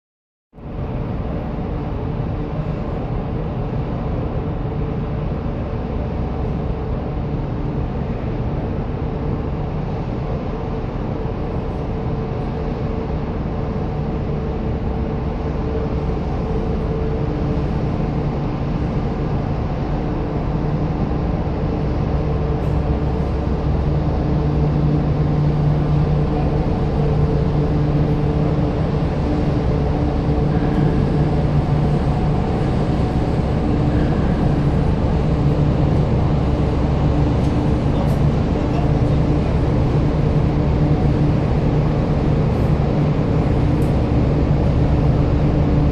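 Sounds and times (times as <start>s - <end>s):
ship engines droning: 0.6s - 45.9s.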